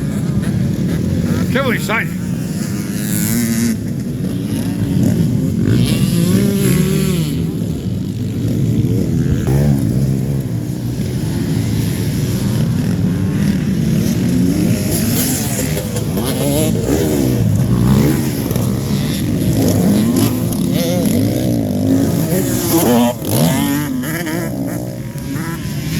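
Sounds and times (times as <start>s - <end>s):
motocross bikes racing: 0.0s - 25.9s.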